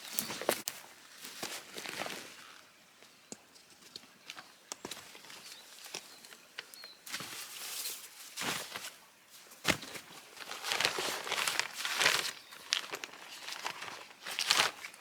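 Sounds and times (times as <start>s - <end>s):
footsteps crunching on dry woodland floor: 0.0s - 2.6s, 4.3s - 15.0s
twigs snapping: 9.6s - 15.0s.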